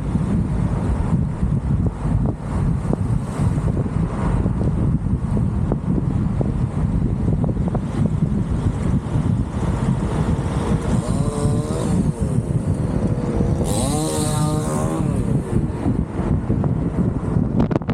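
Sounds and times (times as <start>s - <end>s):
wind rumble on microphone: 0.0s - 17.9s
engine revving: 9.4s - 16.3s.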